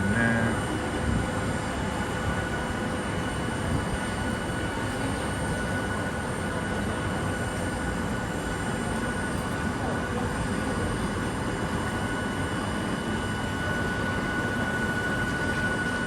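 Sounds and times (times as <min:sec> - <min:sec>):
constant high whine: 0:00.0 - 0:16.0
electric train humming: 0:00.0 - 0:16.0.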